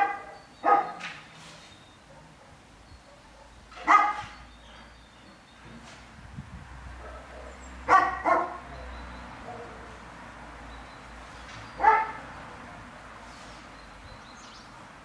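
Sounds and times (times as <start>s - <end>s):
dog barking: 0.0s - 1.1s, 2.0s - 4.4s, 7.0s - 10.0s, 11.8s - 12.9s.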